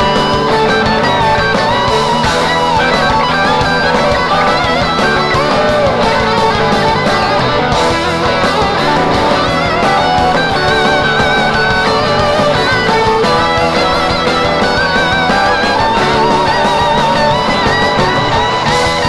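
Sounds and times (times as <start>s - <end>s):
electric guitar lead: 0.0s - 19.0s
live rock band playing: 0.0s - 19.0s.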